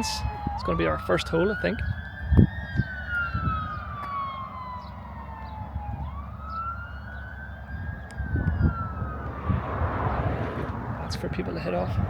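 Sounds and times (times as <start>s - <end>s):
emergency vehicle siren wailing: 0.0s - 12.0s
low rumbling noise: 8.2s - 12.0s.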